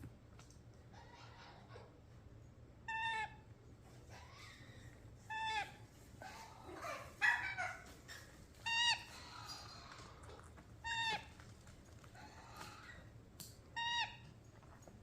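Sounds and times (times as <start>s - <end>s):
parrot calling: 0.9s - 1.9s, 2.9s - 3.4s, 4.0s - 11.4s, 13.8s - 14.3s.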